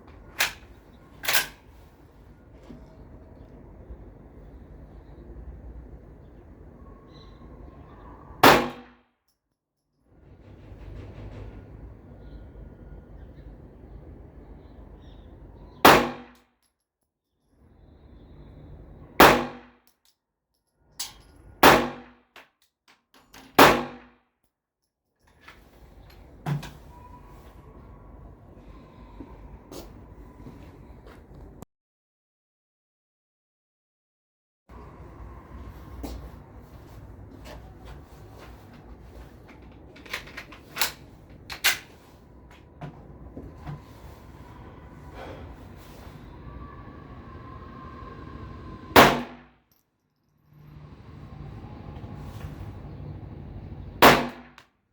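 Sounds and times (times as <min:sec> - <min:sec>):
gun mechanical clicks and clacks: 0:00.4 - 0:01.6, 0:39.4 - 0:41.9
pistol gunshots: 0:15.9 - 0:16.3, 0:19.2 - 0:19.6, 0:49.0 - 0:49.4, 0:54.0 - 0:54.5.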